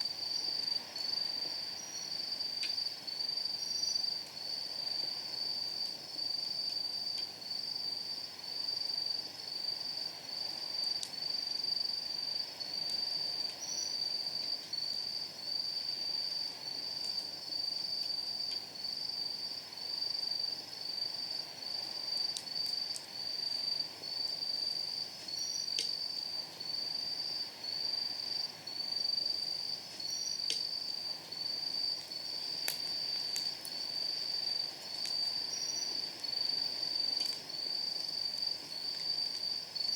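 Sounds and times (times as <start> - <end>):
night insects chirping: 0.0 - 39.9
firewood popping: 25.7 - 26.0, 30.0 - 30.9, 31.9 - 36.4, 37.0 - 39.4.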